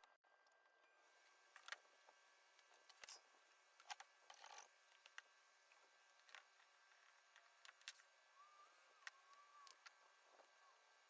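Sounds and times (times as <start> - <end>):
faint wavering whistle tone: 8.3 - 10.8.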